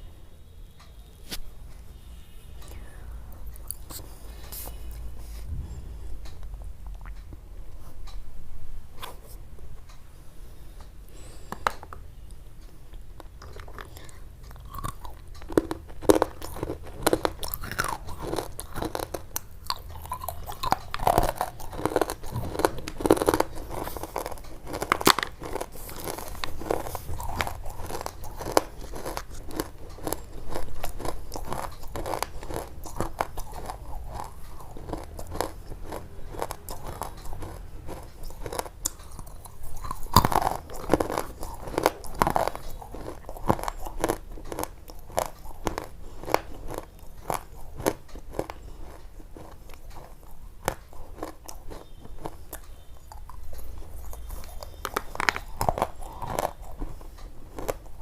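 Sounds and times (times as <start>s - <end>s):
crisp crunching: 13.2s - 58.0s.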